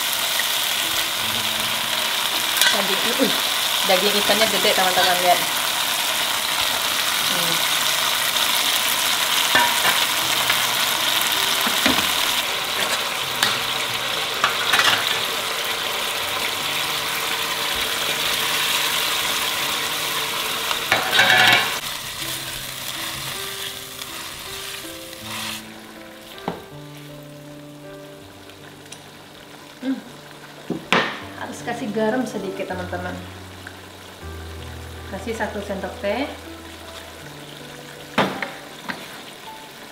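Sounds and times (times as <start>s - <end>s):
fish sizzling in a wok: 0.0s - 39.9s
soft background music: 0.0s - 39.9s
metal spatula scraping: 12.7s - 13.7s, 20.9s - 21.8s, 22.9s - 25.7s.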